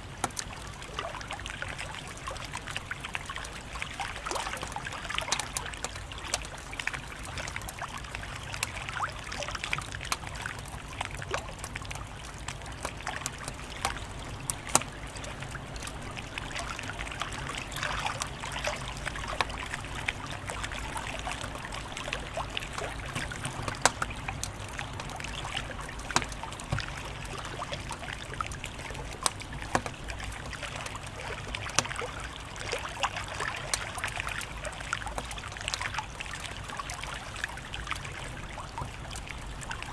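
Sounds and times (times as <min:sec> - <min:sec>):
wood fire crackling and popping: 0:03.2 - 0:30.5.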